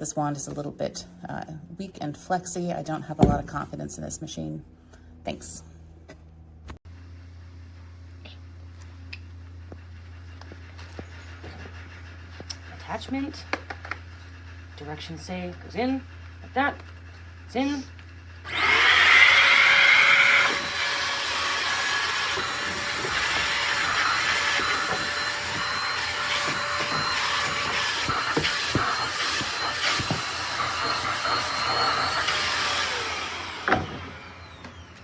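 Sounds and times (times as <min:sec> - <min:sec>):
vacuum cleaner motor whine: 0:18.5 - 0:35.0.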